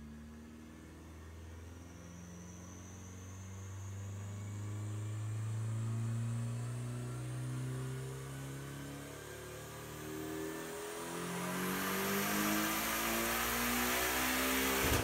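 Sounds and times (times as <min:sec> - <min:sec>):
faint high whine: 0:00.2 - 0:10.1.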